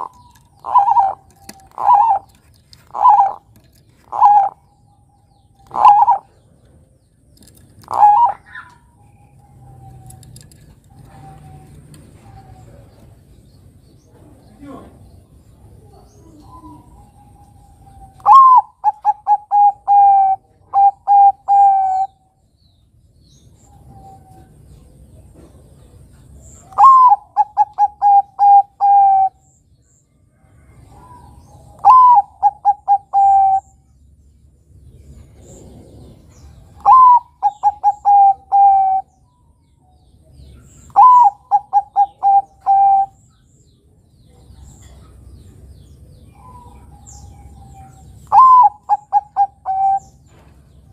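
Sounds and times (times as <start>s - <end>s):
dove cooing: 0.0s - 6.8s, 7.7s - 13.2s, 15.7s - 22.2s, 26.6s - 29.5s, 30.6s - 33.8s, 35.2s - 39.3s, 40.6s - 43.3s, 46.3s - 50.4s.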